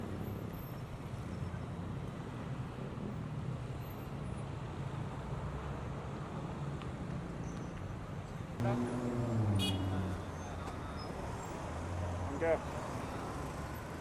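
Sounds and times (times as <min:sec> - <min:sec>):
motor traffic rumble: 0:04.7 - 0:14.0.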